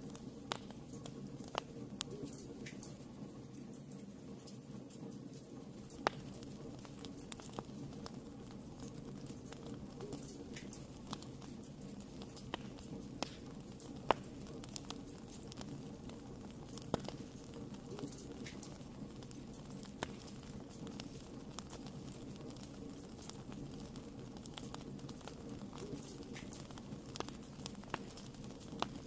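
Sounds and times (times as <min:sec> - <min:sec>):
low rumble of flames: 0:00.0 - 0:29.0
wood fire crackling and popping: 0:00.0 - 0:29.0.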